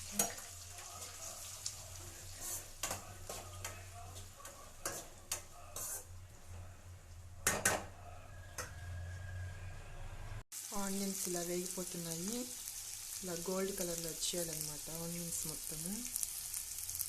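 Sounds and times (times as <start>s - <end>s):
utensil scraping and clinking a pan: 0.0s - 6.1s
onions sizzling in a pan: 0.0s - 6.6s, 10.5s - 17.0s.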